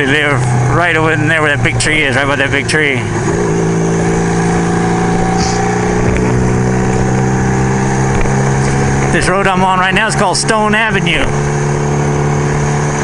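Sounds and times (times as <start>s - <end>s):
motorcycle engine running: 0.0s - 13.0s
wind rumbling on microphone: 3.1s - 9.4s.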